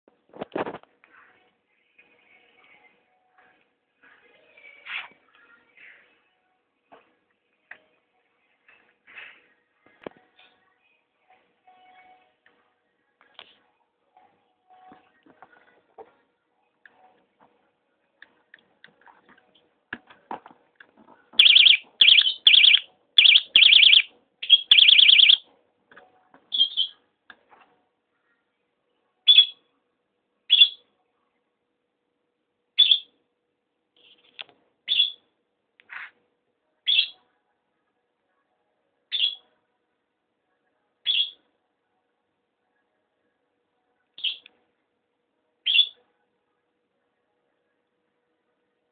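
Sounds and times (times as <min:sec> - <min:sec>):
electronic bite alarm chirping: 0:21.4 - 0:25.4.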